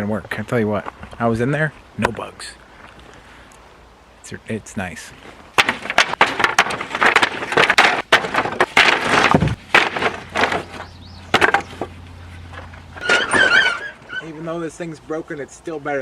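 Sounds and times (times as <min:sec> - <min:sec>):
low steady hum: 0:00.0 - 0:16.0
wooden boards clattering and knocking: 0:05.5 - 0:14.2.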